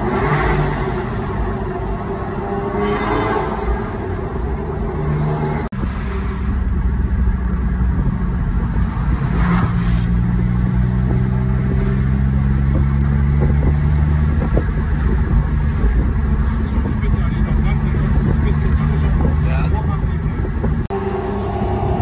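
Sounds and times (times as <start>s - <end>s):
tyre and road noise: 0.0s - 22.0s
car engine running: 10.2s - 22.0s.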